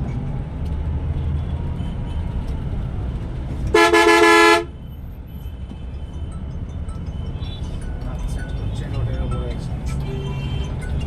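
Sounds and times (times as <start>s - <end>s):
bus engine and road rumble: 0.0s - 11.0s
two-tone vehicle horn blast: 3.7s - 4.8s.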